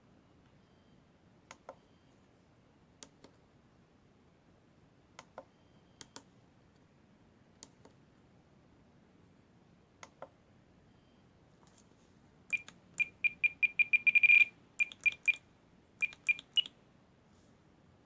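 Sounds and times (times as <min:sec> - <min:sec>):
faint clicks: 0:12.5 - 0:15.4, 0:16.0 - 0:16.7
high-pitched electronic beeps: 0:12.5 - 0:15.4, 0:16.0 - 0:16.7.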